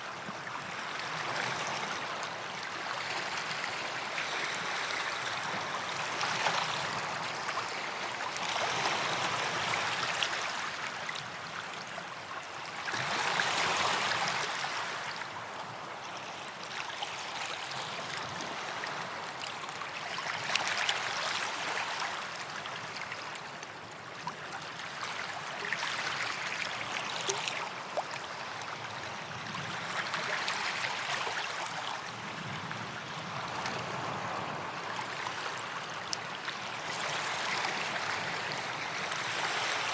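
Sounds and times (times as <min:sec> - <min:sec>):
waves washing onto sand: 0:24.7 - 0:39.9.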